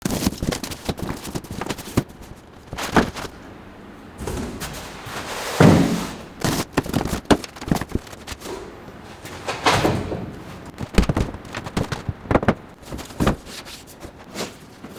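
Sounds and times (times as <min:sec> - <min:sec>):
packaging rustling scrape: 0:00.0 - 0:03.4, 0:04.2 - 0:14.8
clicks and knocks of parts: 0:06.4 - 0:14.9.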